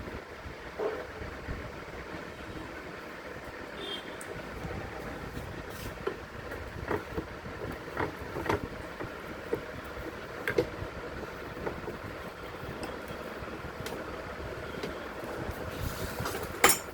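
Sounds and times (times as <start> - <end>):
steady background noise: 0.0 - 16.9
metal parts clicking and knocking: 16.3 - 16.9.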